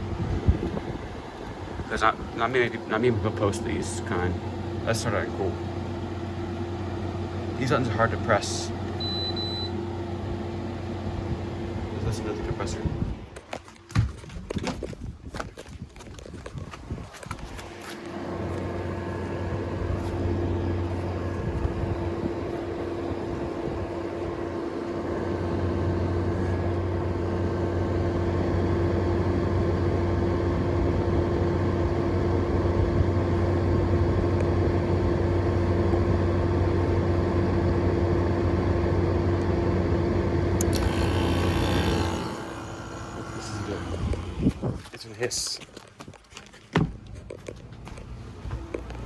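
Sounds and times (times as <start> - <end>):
air conditioner humming: 0.0 - 13.4, 39.3 - 45.6.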